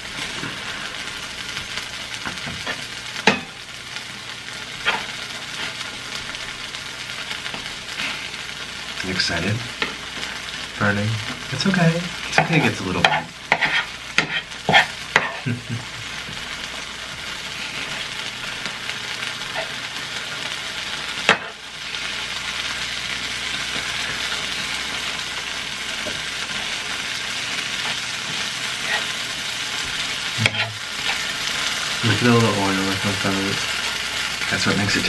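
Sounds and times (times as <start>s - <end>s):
cheese sizzling in a pan: 0.0s - 35.0s.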